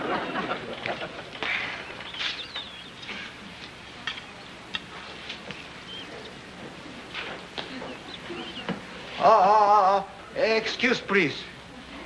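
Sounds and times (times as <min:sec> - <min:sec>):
bird chirps: 0:01.6 - 0:03.3, 0:05.6 - 0:06.3, 0:07.9 - 0:08.7.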